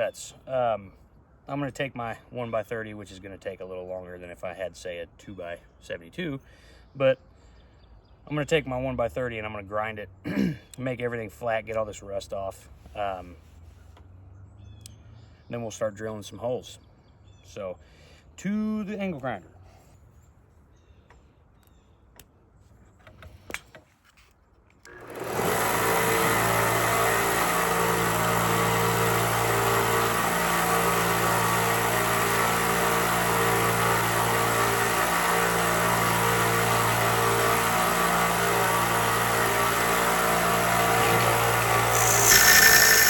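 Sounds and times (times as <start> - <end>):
angle grinder cutting metal: 24.9 - 43.0.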